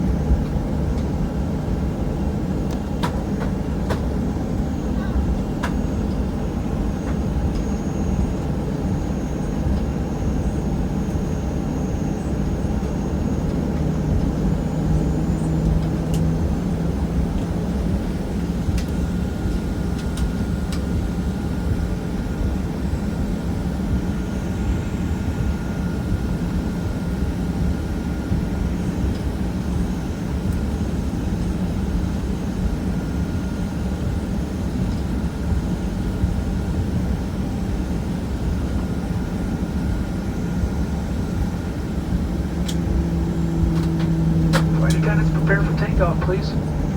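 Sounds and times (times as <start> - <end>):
jet engines idling: 0.0 - 20.9, 40.0 - 46.9.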